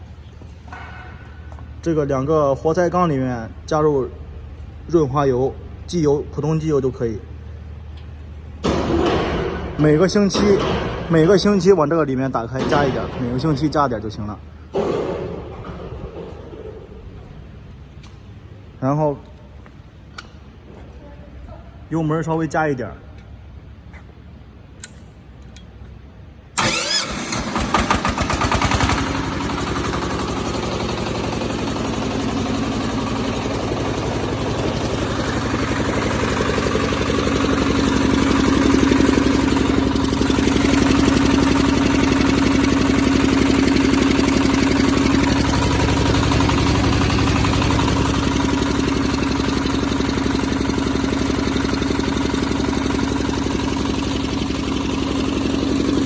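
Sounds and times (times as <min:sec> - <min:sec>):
diesel engine starting and running: 0:00.0 - 0:18.8, 0:23.4 - 0:56.0.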